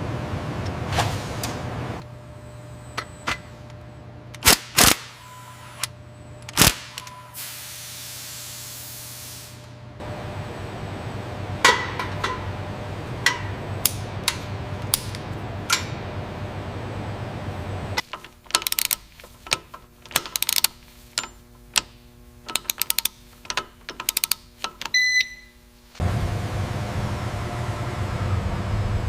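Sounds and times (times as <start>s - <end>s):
machinery humming: 0.0s - 29.0s
air hissing: 6.6s - 9.8s
metallic clicks and knocks: 18.0s - 25.0s.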